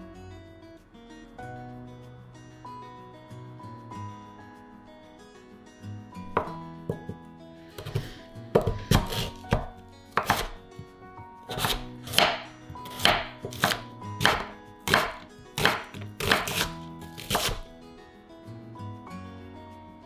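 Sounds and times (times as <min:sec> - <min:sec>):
knife chopping on cutting board: 0:06.3 - 0:07.2, 0:07.8 - 0:10.6, 0:11.5 - 0:17.7.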